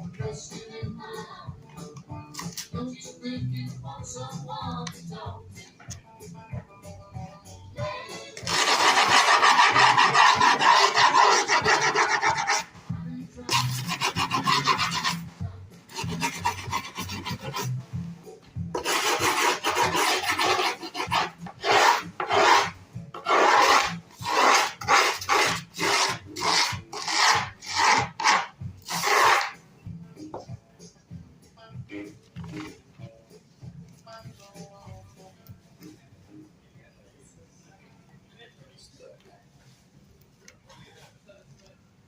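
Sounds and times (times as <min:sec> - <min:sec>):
tool scraping grip tape: 0:08.4 - 0:12.7, 0:13.5 - 0:15.3, 0:15.9 - 0:17.8, 0:18.8 - 0:29.6.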